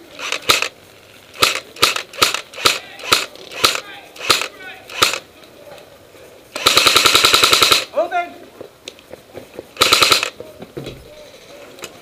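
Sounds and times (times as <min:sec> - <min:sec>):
airsoft gun shots: 0:01.4 - 0:05.2, 0:06.6 - 0:07.9, 0:09.8 - 0:10.4.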